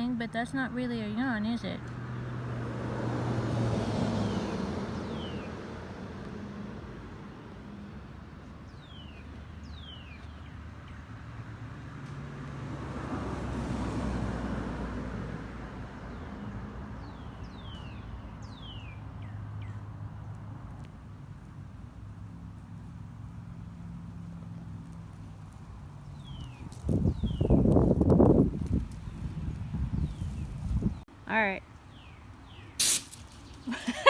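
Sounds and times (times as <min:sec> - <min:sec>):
vehicle passing: 0:01.6 - 0:08.2, 0:11.2 - 0:15.8.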